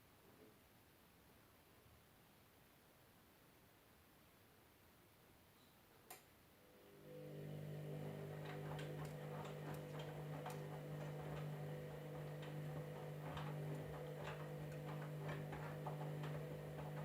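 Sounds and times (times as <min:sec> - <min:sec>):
washing machine motor hum: 0:06.7 - 0:17.0.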